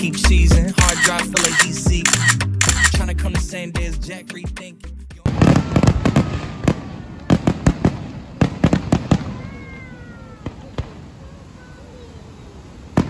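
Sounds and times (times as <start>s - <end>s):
fireworks bangs and cracks: 5.2s - 13.0s.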